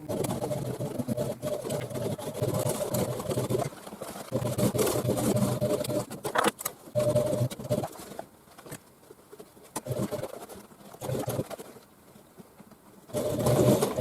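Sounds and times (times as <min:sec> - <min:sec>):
sewing machine stitching: 0:00.0 - 0:08.1, 0:09.8 - 0:11.7, 0:13.1 - 0:14.0.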